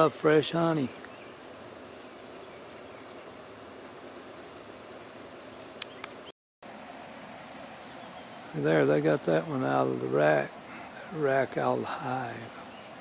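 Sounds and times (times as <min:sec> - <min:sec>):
outdoor hiss: 0:00.0 - 0:13.0
sharp clicks: 0:05.8 - 0:06.2.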